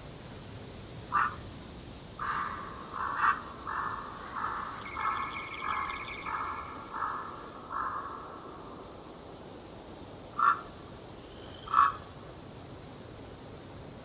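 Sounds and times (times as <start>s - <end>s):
bird rough calls: 1.1s - 1.4s, 2.2s - 8.5s, 10.4s - 10.7s, 11.6s - 12.1s
higher chattering bird call: 2.2s - 8.4s.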